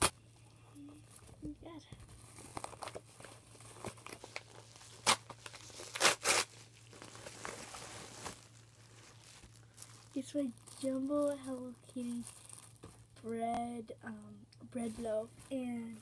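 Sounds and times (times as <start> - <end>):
packaging crinkling: 2.1 - 13.1
packaging ripping: 2.2 - 12.9.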